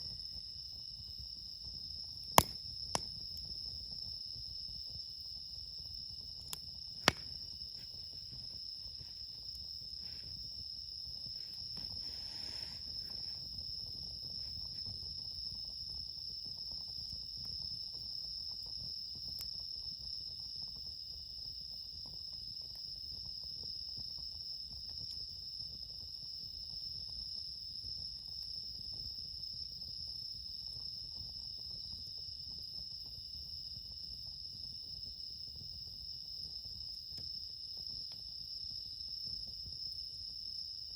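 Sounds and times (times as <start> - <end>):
crickets chirping: 0.0 - 40.9
sharp snap: 7.0 - 7.3.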